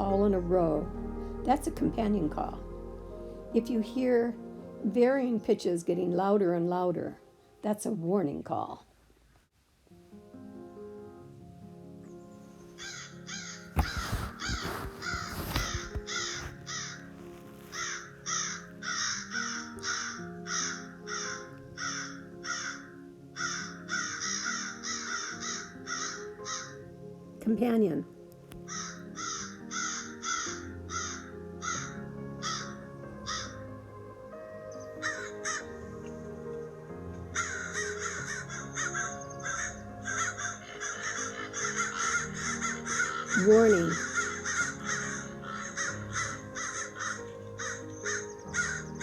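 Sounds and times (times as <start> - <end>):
soft background music: 0.0 - 8.9, 9.8 - 49.0
crow cawing: 12.8 - 13.7, 17.8 - 26.8, 28.7 - 32.7, 33.3 - 33.6, 35.0 - 35.7, 37.4 - 49.0.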